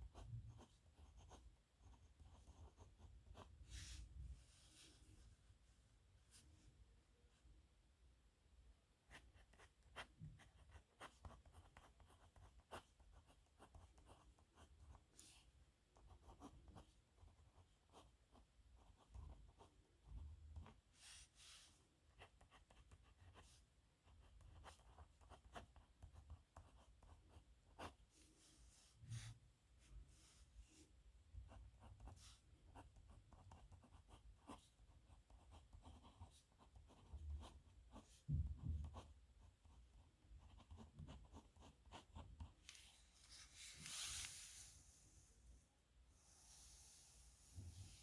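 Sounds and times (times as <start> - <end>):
pen scratching on paper: 0.1 - 3.6, 9.1 - 20.8, 22.1 - 28.0, 31.5 - 38.2, 38.8 - 42.6.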